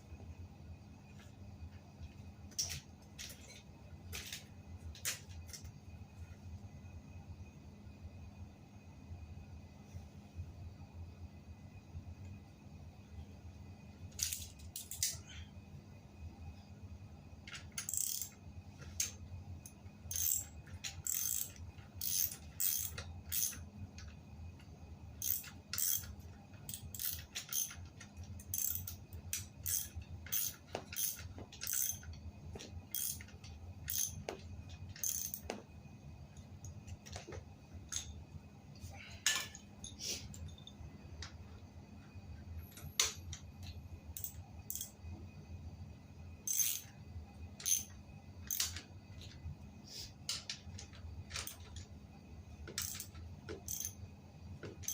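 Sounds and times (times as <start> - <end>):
steady low hum: 0.0 - 54.9
metallic clicks and clinks: 2.5 - 5.7, 14.2 - 15.2, 17.5 - 24.2, 25.2 - 32.2, 32.9 - 35.6, 39.3 - 41.3, 42.6 - 45.0, 47.6 - 49.4, 50.3 - 51.9, 52.7 - 54.0.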